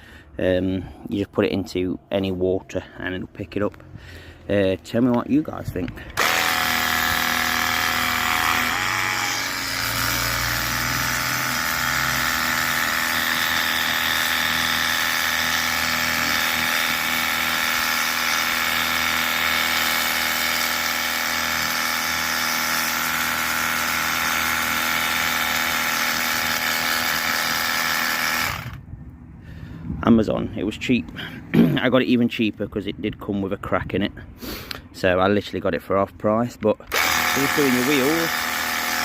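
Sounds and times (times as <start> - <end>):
pressure washer motor whine: 6.2 - 28.8, 36.9 - 39.0.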